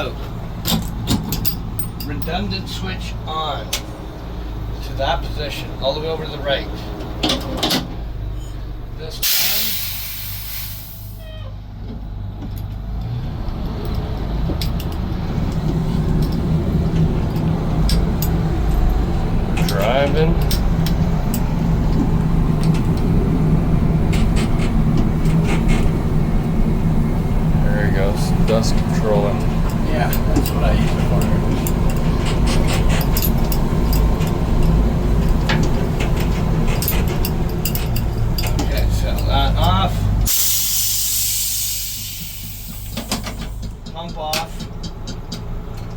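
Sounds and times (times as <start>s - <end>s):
fire truck engine running: 0.0s - 45.9s
air hiss: 9.2s - 11.2s, 40.3s - 43.5s
scattered clicks and knocks: 24.0s - 26.0s, 28.0s - 39.8s, 42.7s - 45.9s.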